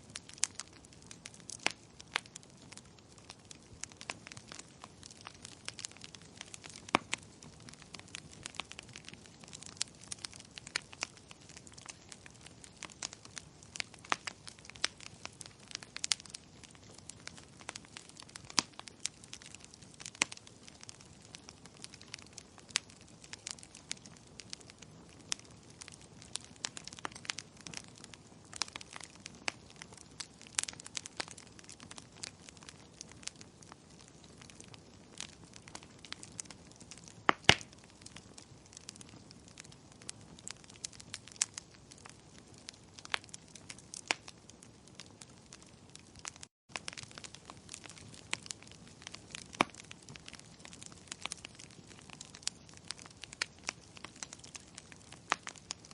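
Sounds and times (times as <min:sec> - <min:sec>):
low hiss of burning: 0:00.0 - 0:55.9
wood fire crackling: 0:00.0 - 0:55.9.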